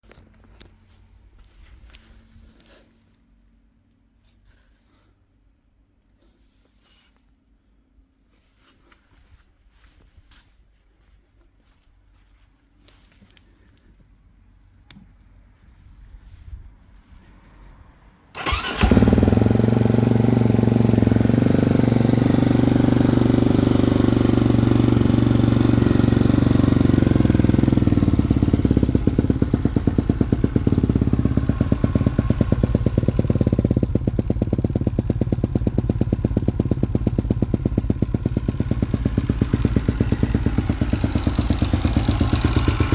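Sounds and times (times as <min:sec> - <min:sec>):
motorcycle engine starting and idling: 0:18.3 - 0:42.9.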